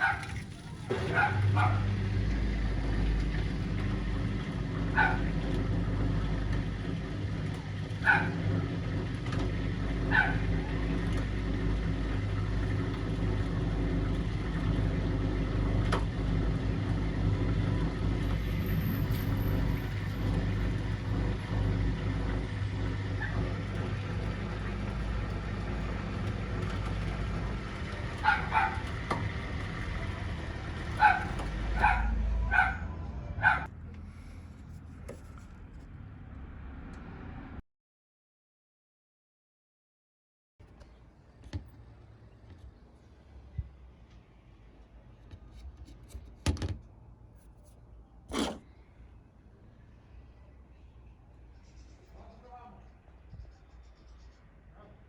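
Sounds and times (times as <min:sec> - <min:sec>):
dog yipping: 0:00.0 - 0:01.9, 0:05.0 - 0:05.3, 0:08.0 - 0:08.4, 0:10.1 - 0:10.4, 0:28.2 - 0:28.9, 0:31.0 - 0:33.7
washing machine humming: 0:00.0 - 0:33.7.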